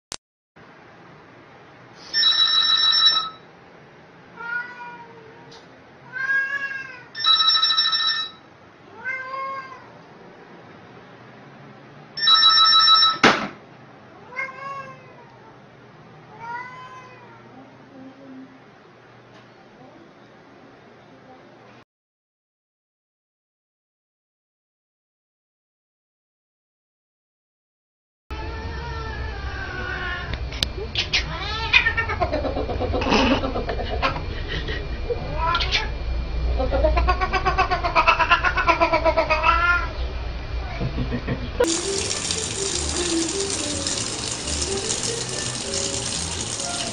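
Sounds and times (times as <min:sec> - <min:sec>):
cat meowing: 0:04.4 - 0:05.5, 0:06.1 - 0:07.2, 0:08.9 - 0:09.9, 0:14.2 - 0:15.4, 0:16.3 - 0:17.4, 0:31.2 - 0:32.3, 0:35.3 - 0:35.9, 0:36.9 - 0:40.0.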